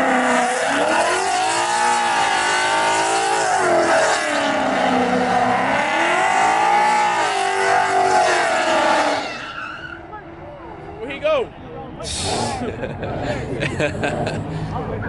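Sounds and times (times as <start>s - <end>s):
car engine revving hard: 0.0s - 9.5s.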